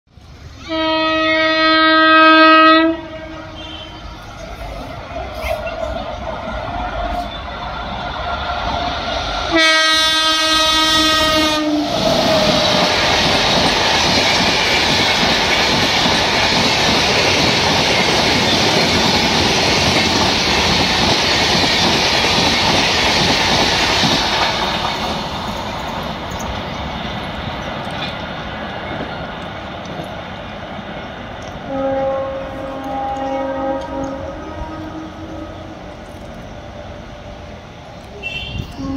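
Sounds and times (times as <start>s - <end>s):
train wheels rumbling on rails: 0.1s - 38.9s
locomotive horn blast: 0.6s - 4.2s, 9.5s - 12.6s, 31.6s - 36.0s, 38.2s - 38.9s.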